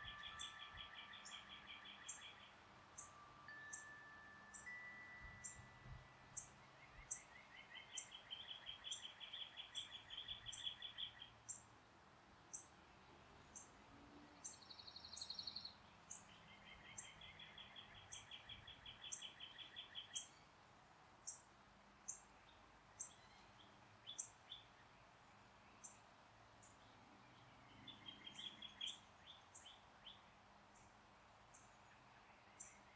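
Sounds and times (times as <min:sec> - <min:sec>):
wind chime note: 0:00.0 - 0:02.2, 0:03.0 - 0:06.7
trilled bird songs: 0:00.0 - 0:11.7, 0:14.4 - 0:20.5, 0:22.1 - 0:30.9, 0:31.5 - 0:32.9.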